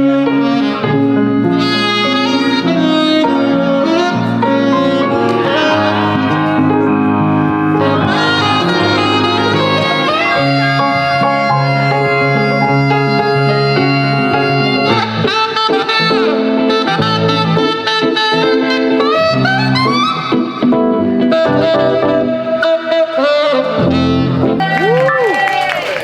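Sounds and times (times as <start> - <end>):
bass line: 0.0 - 20.2
saxophone melody: 0.0 - 24.8
sustained chords: 0.9 - 15.3.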